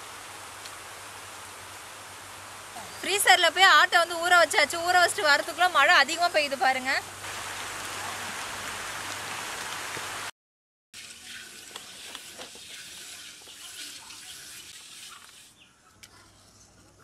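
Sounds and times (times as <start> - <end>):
rain falling: 0.0 - 10.3.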